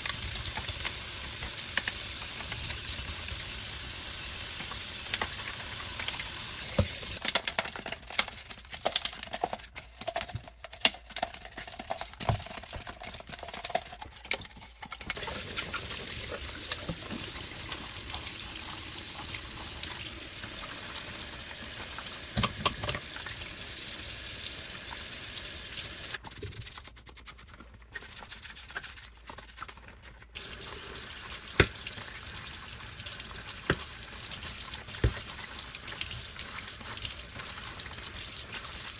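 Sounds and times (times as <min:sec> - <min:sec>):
tap water running into sink: 0:00.0 - 0:07.2, 0:15.2 - 0:26.2, 0:30.4 - 0:38.9.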